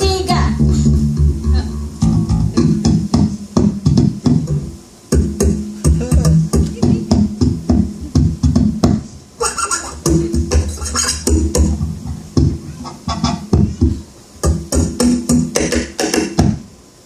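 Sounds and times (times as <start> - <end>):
acoustic guitar groove: 0.0 - 16.6
bass notes: 0.0 - 16.7.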